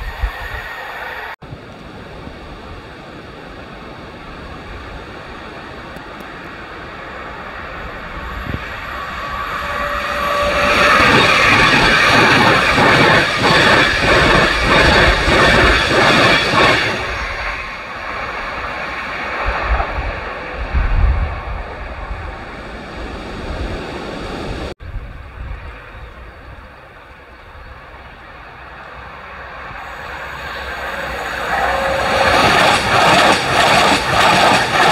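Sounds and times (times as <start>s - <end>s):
high-speed train passing: 0.0s - 34.9s
wheels clattering on rails: 29.9s - 34.9s.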